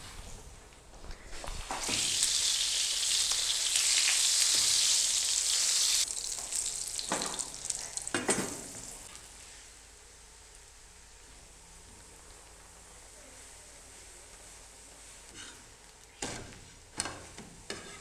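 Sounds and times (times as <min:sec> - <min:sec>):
ghee sizzling on hot griddle: 0:01.6 - 0:09.8, 0:13.8 - 0:18.0
spatula pressing flatbread: 0:15.3 - 0:18.0.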